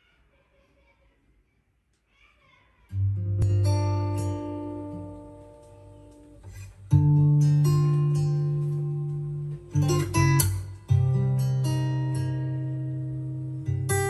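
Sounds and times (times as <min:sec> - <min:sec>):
acoustic guitar ballad: 0:02.9 - 0:14.0.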